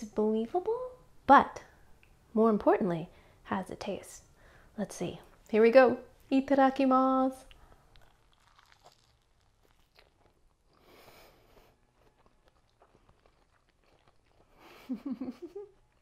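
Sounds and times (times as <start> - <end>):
person chewing crunchy food: 7.5 - 15.0.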